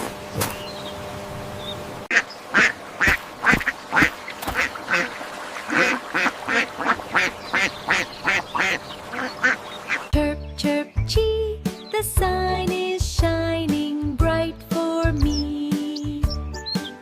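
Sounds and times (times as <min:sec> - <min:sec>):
duck quacking: 0:02.1 - 0:10.1.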